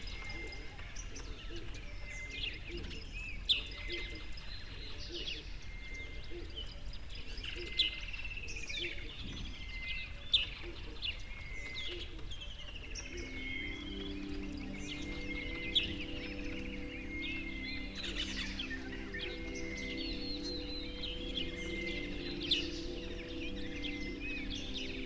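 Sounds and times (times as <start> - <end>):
songbirds singing: 0.0 - 25.0.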